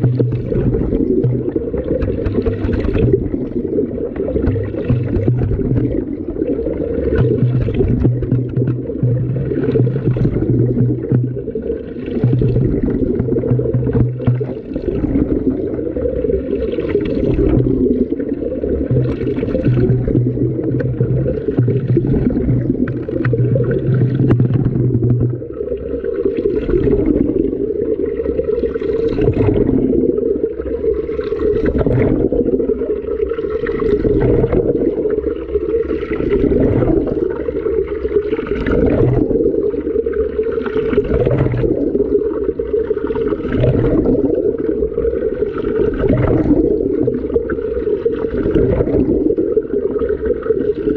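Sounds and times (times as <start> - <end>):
water sloshing in washing machine: 0.0 - 25.4, 28.6 - 30.0, 31.1 - 32.6, 36.0 - 39.6, 40.6 - 42.1, 42.9 - 44.6, 45.4 - 50.9.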